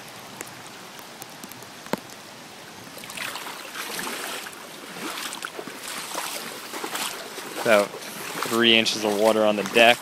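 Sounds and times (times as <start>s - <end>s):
water sloshing and splashing: 2.8s - 10.0s.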